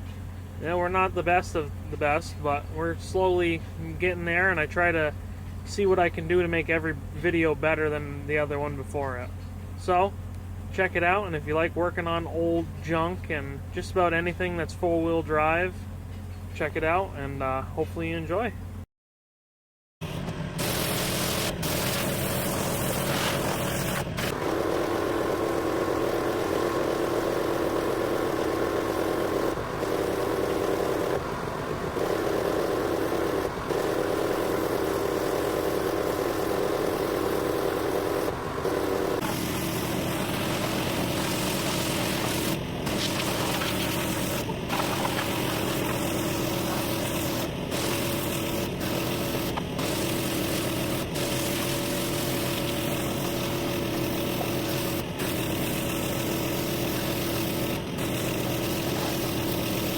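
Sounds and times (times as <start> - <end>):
pressure washer motor hum: 0.0 - 16.5, 20.2 - 59.9
water spray hiss: 21.7 - 53.4.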